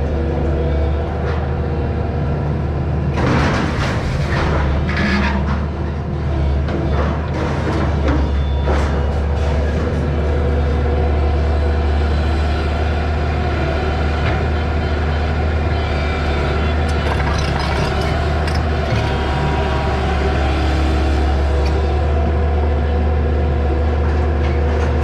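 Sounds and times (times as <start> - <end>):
excavator diesel engine running: 4.0 - 25.0
light clanks and rattles: 16.8 - 19.8.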